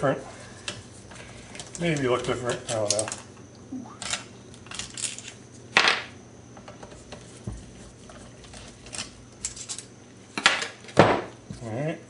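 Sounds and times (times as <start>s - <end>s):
metal parts clicking and scraping: 4.0s - 5.4s, 8.4s - 9.9s.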